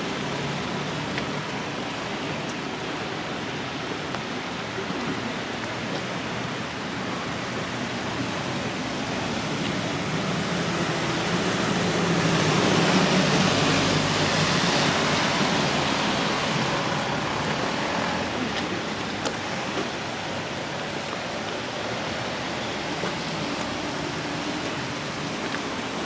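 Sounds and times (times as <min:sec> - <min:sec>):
tyres on wet road: 0:00.0 - 0:26.0
rain hissing: 0:07.0 - 0:26.0.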